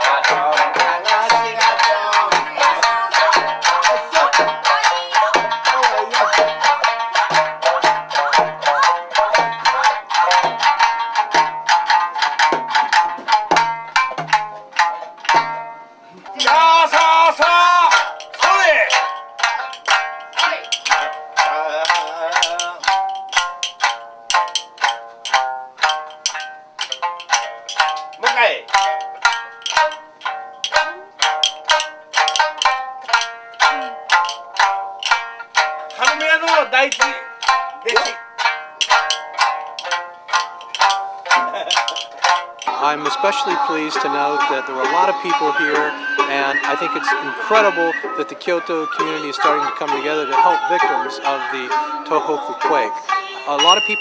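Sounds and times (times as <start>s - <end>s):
plucked string instrument music: 0.0s - 54.0s.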